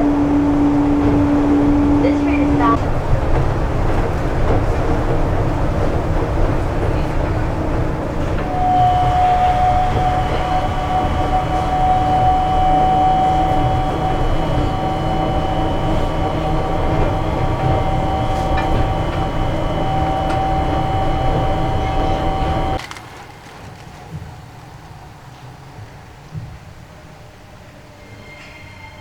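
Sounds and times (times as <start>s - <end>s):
train inverter high tone: 0.0s - 2.8s, 6.8s - 22.8s, 27.9s - 29.0s
low running rumble: 0.0s - 22.8s.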